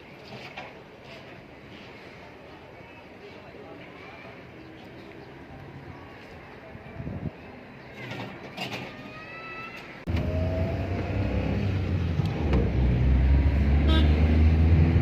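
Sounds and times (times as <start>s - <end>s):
vehicle engine low rumble: 10.1s - 15.0s.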